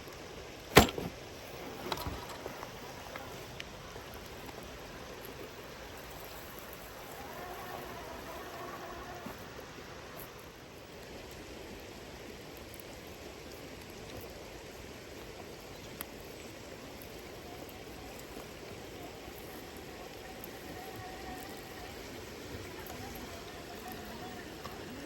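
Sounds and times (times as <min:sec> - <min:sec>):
faint steady whine: 0:00.0 - 0:25.0
river water over stones: 0:00.0 - 0:25.0
sharp click: 0:00.7 - 0:01.2.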